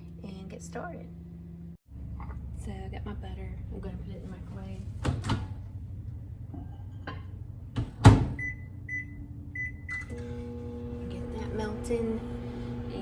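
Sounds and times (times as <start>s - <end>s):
microwave running hum: 0.0s - 13.0s
microwave door shutting: 7.8s - 8.5s
keypad beeps: 8.4s - 10.0s.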